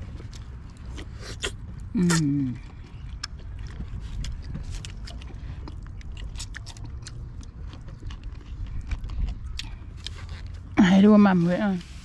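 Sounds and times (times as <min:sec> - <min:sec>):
person chewing and biting: 0:00.0 - 0:10.8
steady low rumble: 0:00.0 - 0:12.0.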